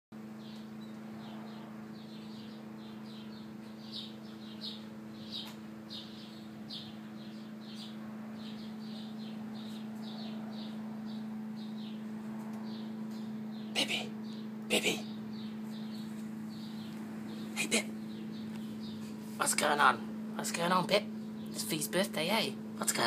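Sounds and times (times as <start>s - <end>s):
bird chirping: 0.2s - 19.8s
steady low hum: 0.2s - 23.0s.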